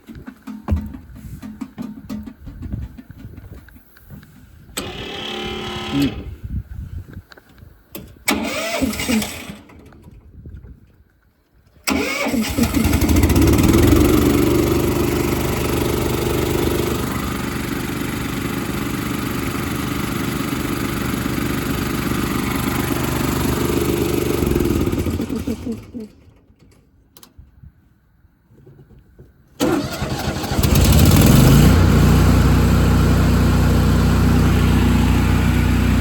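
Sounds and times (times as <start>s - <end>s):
engine starting and running: 4.7s - 6.4s, 8.1s - 10.2s, 11.8s - 26.8s, 29.6s - 36.0s.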